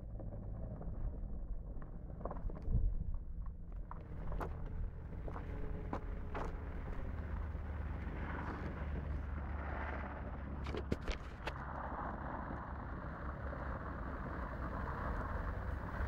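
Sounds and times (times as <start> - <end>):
distant car engine running: 3.7 - 16.0.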